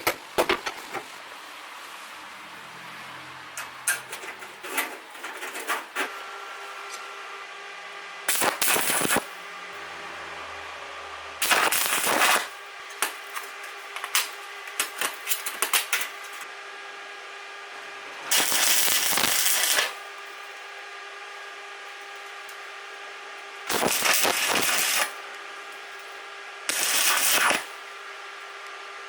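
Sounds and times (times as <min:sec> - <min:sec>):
steady hum: 0:03.4 - 0:14.8
welding arc crackle: 0:08.2 - 0:16.4, 0:18.2 - 0:20.6, 0:23.6 - 0:27.9.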